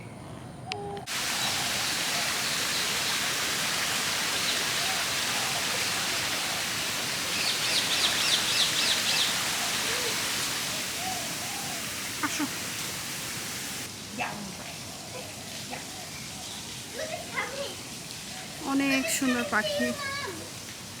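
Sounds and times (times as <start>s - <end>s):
faint bird calls: 0.0s - 12.8s
falling water rushing: 1.0s - 21.0s.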